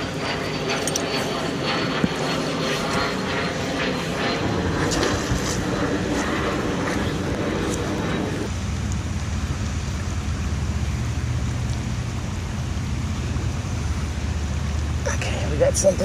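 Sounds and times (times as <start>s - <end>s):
low steady rumble: 0.0s - 16.0s
light rain hissing: 4.9s - 16.0s.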